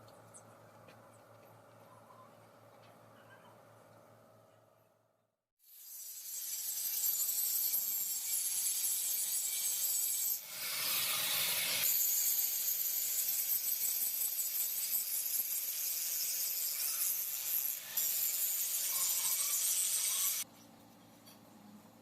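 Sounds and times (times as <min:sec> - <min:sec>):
tool rasping on metal: 0:05.8 - 0:20.4.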